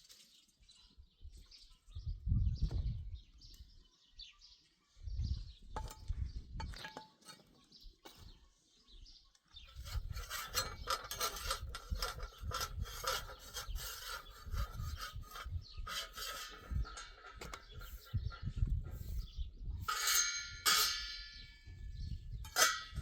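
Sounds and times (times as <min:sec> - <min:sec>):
scraping and rubbing: 0:09.6 - 0:23.0.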